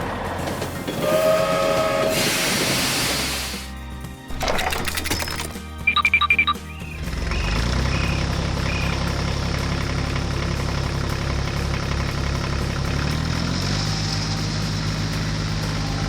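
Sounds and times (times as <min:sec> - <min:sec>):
diesel engine idling: 0:06.0 - 0:16.0.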